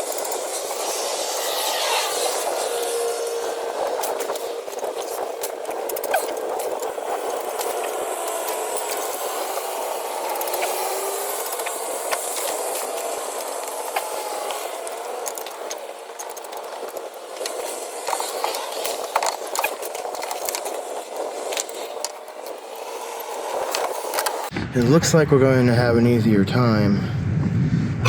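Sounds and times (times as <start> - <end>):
hand tools clicking on metal: 2.3 - 24.5.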